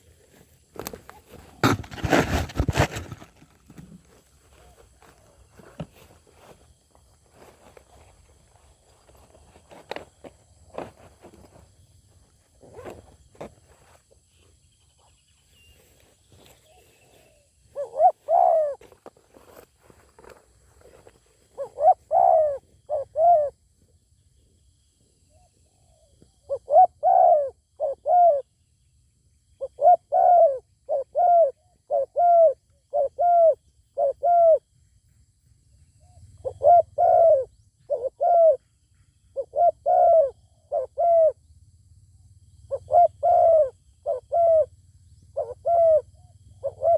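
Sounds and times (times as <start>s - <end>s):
doves cooing: 16.6s - 19.6s, 20.8s - 23.6s, 25.4s - 28.4s, 29.6s - 34.6s, 36.4s - 38.7s, 39.4s - 41.4s, 42.7s - 44.7s, 45.4s - 46.9s.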